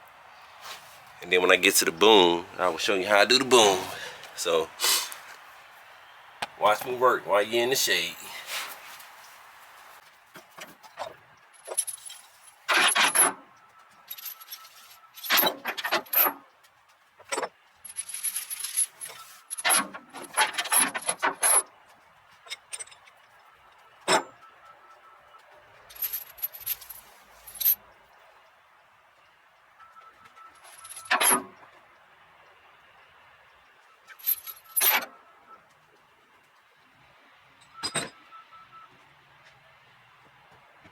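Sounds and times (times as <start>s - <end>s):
chains rattling and clinking: 11.6s - 13.3s, 14.1s - 16.3s, 17.8s - 21.6s, 25.9s - 27.8s, 30.6s - 31.4s, 34.1s - 35.1s.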